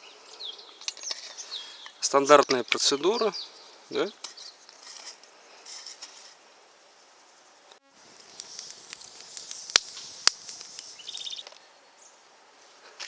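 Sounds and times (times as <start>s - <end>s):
hands rustling with parts: 4.2s - 6.4s, 8.0s - 11.6s
sharp clicks: 8.2s - 11.6s.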